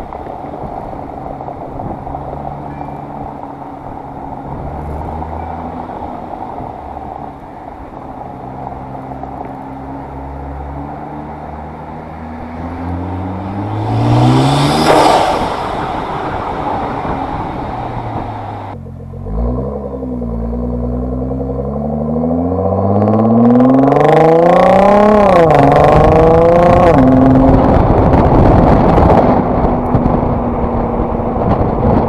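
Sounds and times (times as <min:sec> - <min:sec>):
car engine revving: 0:00.0 - 0:32.0
rush of air noise: 0:13.1 - 0:18.8.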